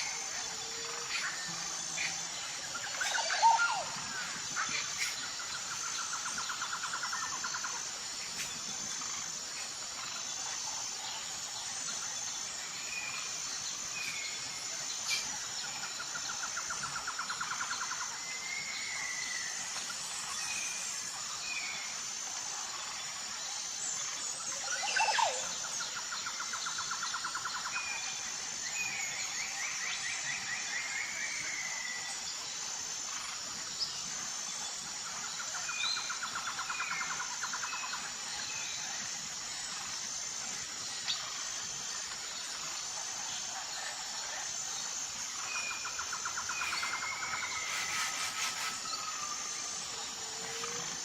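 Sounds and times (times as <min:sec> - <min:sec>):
insect drone: 0:00.0 - 0:51.0
bird calls: 0:45.4 - 0:51.0.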